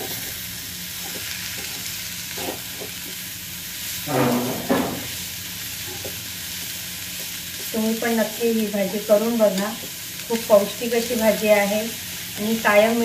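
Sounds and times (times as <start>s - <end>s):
vegetables sizzling in a pan: 0.0s - 13.0s
steel spoon scraping a pan: 1.0s - 3.0s, 4.0s - 5.1s.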